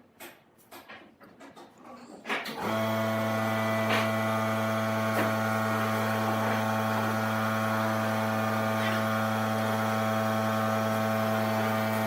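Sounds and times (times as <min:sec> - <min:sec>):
electric motor humming: 0:02.6 - 0:12.0.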